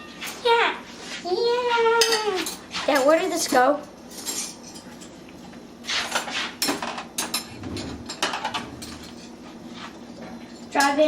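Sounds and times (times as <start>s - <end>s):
dishes and cutlery clattering: 2.0s - 5.2s, 6.0s - 9.4s.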